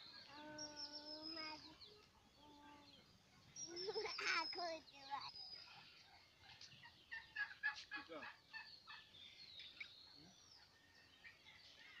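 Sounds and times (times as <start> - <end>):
turkeys calling: 5.6 - 9.9.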